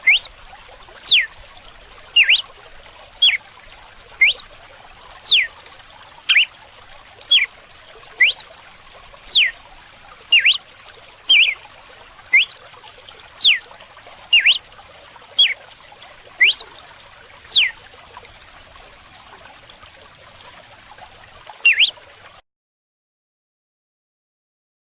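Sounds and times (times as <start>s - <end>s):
bird whistling sharp notes: 0.0s - 0.3s, 1.0s - 1.3s, 2.2s - 2.4s, 4.2s - 4.4s, 5.2s - 5.5s, 6.3s - 6.5s, 8.2s - 8.4s, 9.3s - 9.6s, 10.3s - 10.6s, 11.3s - 11.6s, 12.3s - 12.6s, 13.4s - 13.6s, 14.3s - 14.6s, 16.4s - 16.7s, 17.5s - 17.8s, 21.6s - 22.0s
water trickling: 0.0s - 22.4s.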